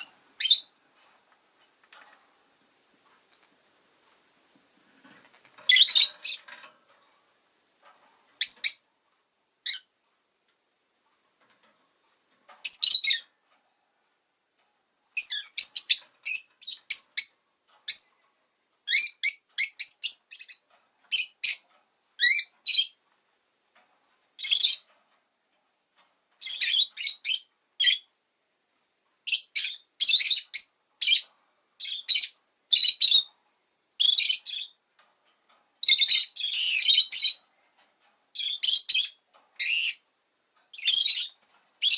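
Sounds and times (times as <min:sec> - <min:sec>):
lovebird chirping: 0:00.0 - 0:00.8, 0:05.7 - 0:06.4, 0:08.4 - 0:08.9, 0:09.6 - 0:09.9, 0:12.6 - 0:13.3, 0:15.2 - 0:18.1, 0:18.9 - 0:23.0, 0:24.4 - 0:24.8, 0:26.4 - 0:28.1, 0:29.2 - 0:31.2, 0:31.8 - 0:33.3, 0:34.0 - 0:34.8, 0:35.8 - 0:37.4, 0:38.4 - 0:40.0, 0:40.7 - 0:41.9.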